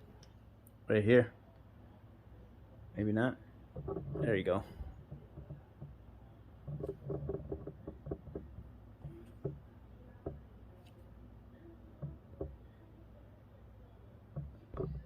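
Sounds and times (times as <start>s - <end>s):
electronic parts clicking and knocking: 3.7s - 10.5s, 12.0s - 12.7s, 14.2s - 15.0s.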